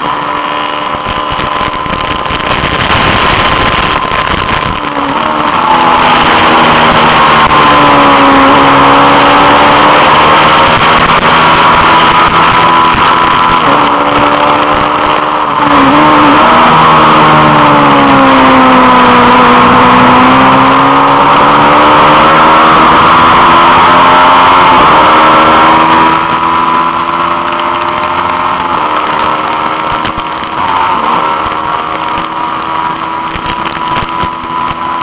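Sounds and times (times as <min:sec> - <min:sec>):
heavy wind noise: 0:00.0 - 0:16.4
racing motorcycle engine: 0:00.0 - 0:35.0.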